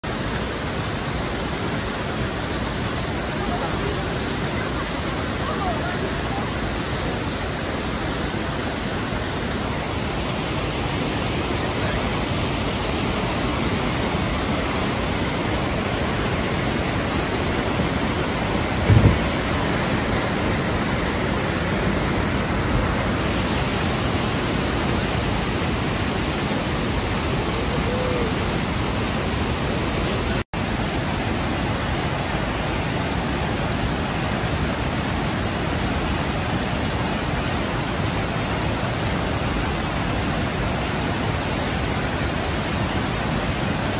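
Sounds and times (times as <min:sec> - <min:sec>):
waterfall rushing: 0:00.0 - 0:43.9
low thump: 0:18.8 - 0:19.6.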